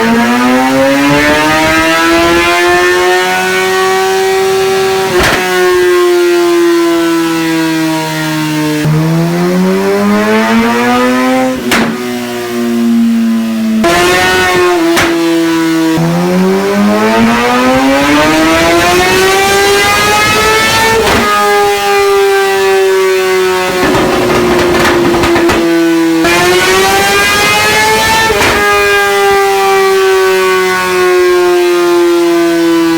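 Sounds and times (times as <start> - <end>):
motorcycle engine revving on a dyno: 0.0 - 32.9.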